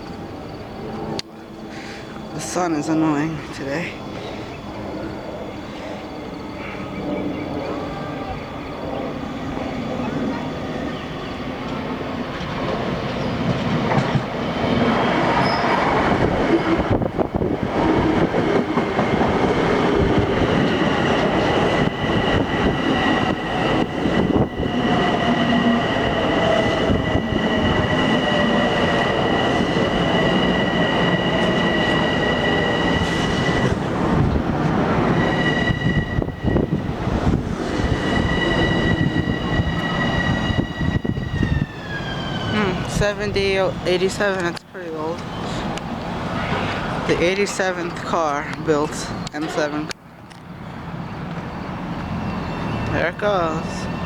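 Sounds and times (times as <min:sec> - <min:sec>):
train wheel and rail noise: 0:00.0 - 0:54.0
high-pitched whines: 0:18.2 - 0:49.6.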